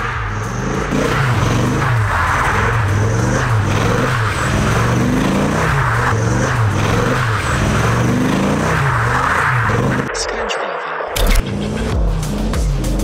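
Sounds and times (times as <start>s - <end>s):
car engine revving: 0.0s - 10.2s
tyres spinning and squealing: 0.0s - 10.2s.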